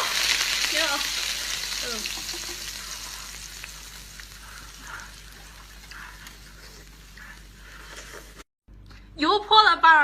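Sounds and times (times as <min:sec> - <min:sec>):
hot oil sizzling: 0:00.0 - 0:08.4.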